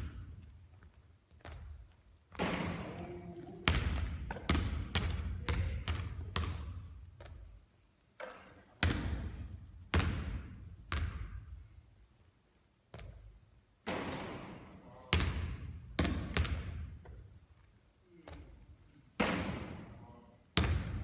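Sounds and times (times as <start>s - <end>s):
basketball bouncing on hard court: 0.0s - 7.5s, 8.2s - 11.5s, 12.9s - 17.3s, 20.6s - 21.0s.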